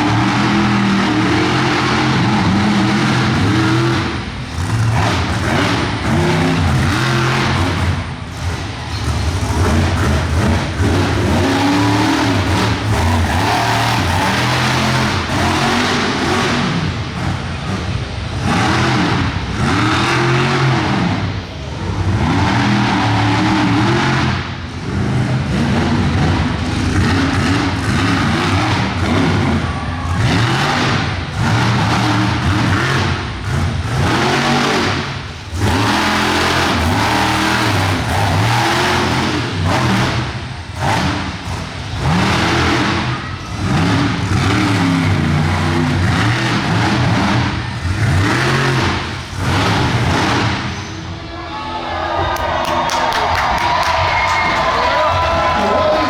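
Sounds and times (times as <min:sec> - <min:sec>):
truck engine revving hard: 0:00.0 - 0:51.4, 0:52.8 - 0:56.0.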